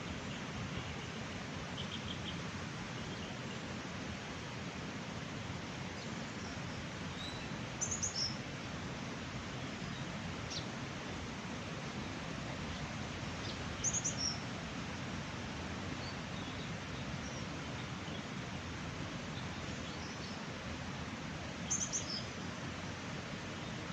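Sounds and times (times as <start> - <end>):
small birds chirping: 6.0 - 8.4, 12.7 - 14.4, 21.6 - 22.4.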